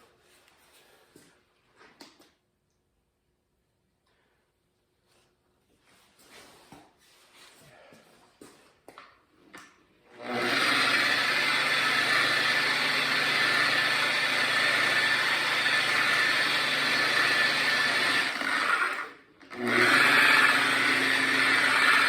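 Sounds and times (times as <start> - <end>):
electric polisher whirring: 10.1 - 22.0.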